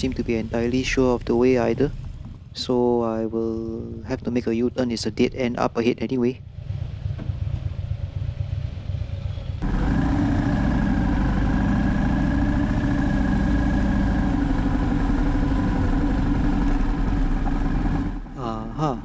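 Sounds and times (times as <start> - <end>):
low rumble: 0.0 - 19.0
motorcycle engine running: 6.4 - 19.0.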